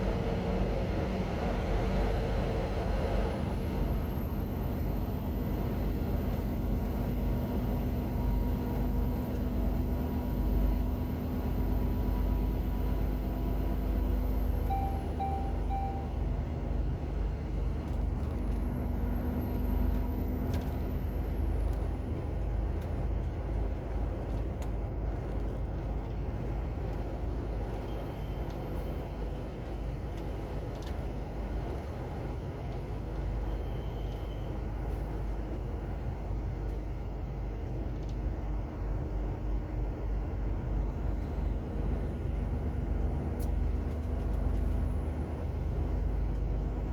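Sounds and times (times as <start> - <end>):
road noise: 0.0 - 46.9
truck diesel engine rumble: 0.0 - 46.9
short beeps: 14.6 - 16.4.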